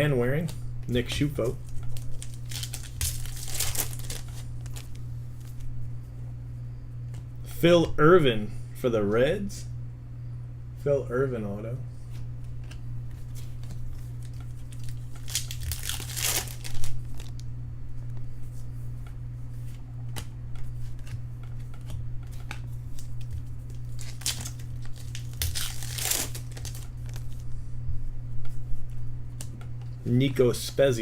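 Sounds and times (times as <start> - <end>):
steady low hum: 0.0 - 31.0
cards clicking and rustling: 0.4 - 5.6, 12.2 - 17.4, 19.6 - 27.4
wrappers tearing and crinkling: 1.6 - 5.6, 13.5 - 17.4, 22.9 - 27.4.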